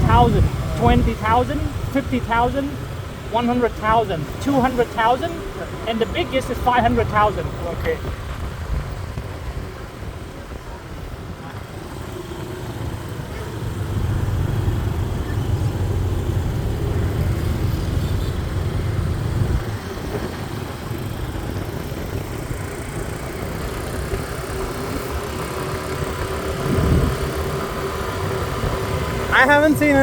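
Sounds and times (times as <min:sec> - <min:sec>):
city street traffic: 0:00.0 - 0:30.0.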